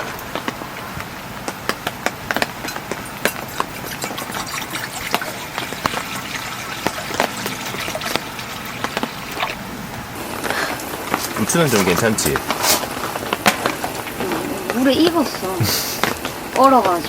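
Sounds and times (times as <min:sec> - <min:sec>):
sharp taps and knocks: 0:00.0 - 0:09.6
heavy rain on a tent: 0:00.0 - 0:17.0.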